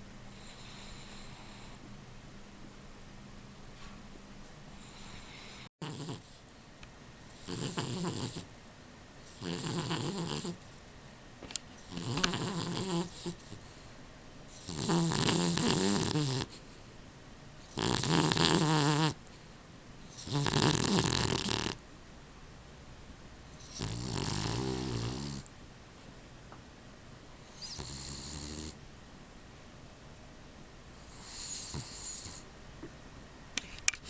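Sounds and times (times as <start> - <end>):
dog snoring loudly: 0.4 - 1.8, 4.8 - 6.4, 7.3 - 8.5, 9.3 - 10.6, 11.8 - 13.8, 14.5 - 16.6, 17.6 - 19.2, 20.1 - 21.8, 23.6 - 25.5, 27.4 - 28.8, 31.0 - 32.4.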